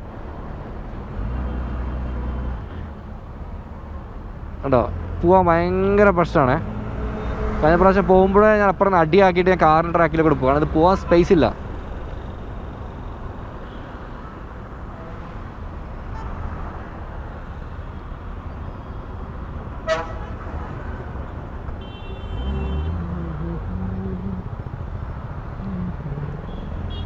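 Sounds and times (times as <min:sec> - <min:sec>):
traffic engine rumble: 0:00.0 - 0:27.0
car horn: 0:16.0 - 0:16.6, 0:19.8 - 0:20.9, 0:21.7 - 0:23.1, 0:26.5 - 0:27.0.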